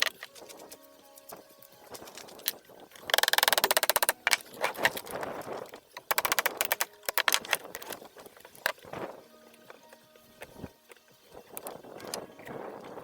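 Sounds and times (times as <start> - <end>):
hand tools clicking on metal: 0.0 - 12.2.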